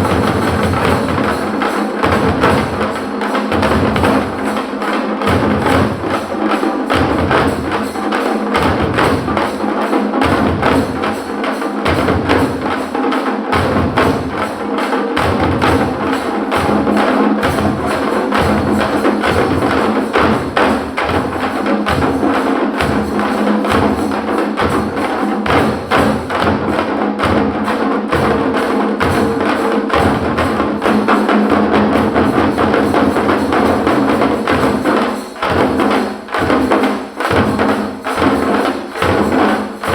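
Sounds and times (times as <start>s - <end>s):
heavy low drum beat: 0.0s - 2.9s
frame drums beaten with sticks: 0.0s - 39.9s.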